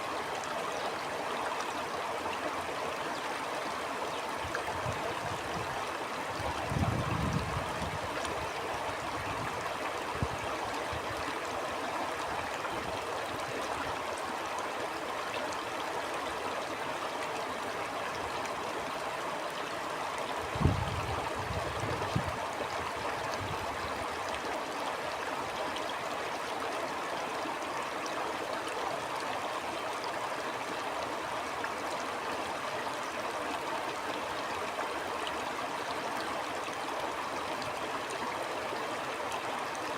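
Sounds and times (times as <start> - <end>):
stream water flowing: 0.0 - 39.9
wind gusts on microphone: 6.4 - 8.2, 20.5 - 22.5.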